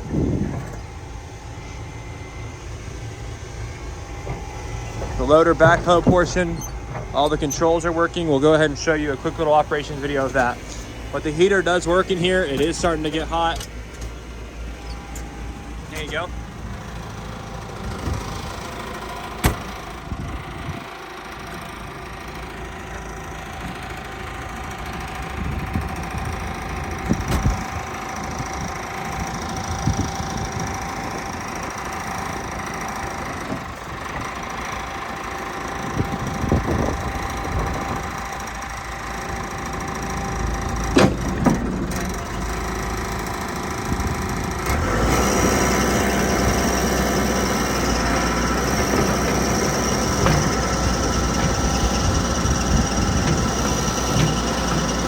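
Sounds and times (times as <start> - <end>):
diesel engine running: 0.0 - 55.0
sharp metal clunks: 19.4 - 19.9, 40.9 - 41.7.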